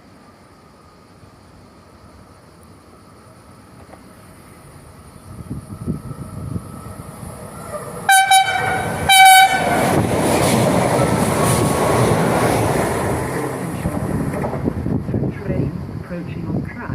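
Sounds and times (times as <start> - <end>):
train rumbling and rushing past: 0.1 - 16.9
train horn blasts: 8.1 - 10.1.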